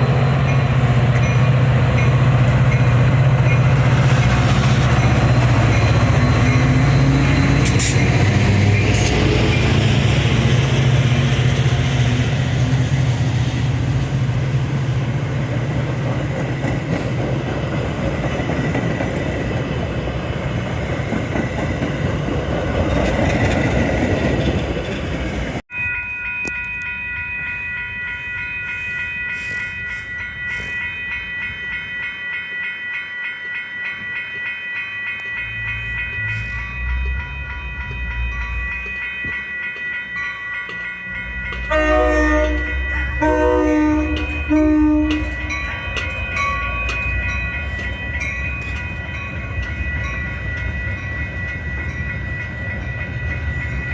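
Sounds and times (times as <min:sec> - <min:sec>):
pulsing bell-like ringing: 0:00.0 - 0:23.8, 0:25.7 - 0:53.9
train passing with roar: 0:00.0 - 0:25.6, 0:33.9 - 0:53.9.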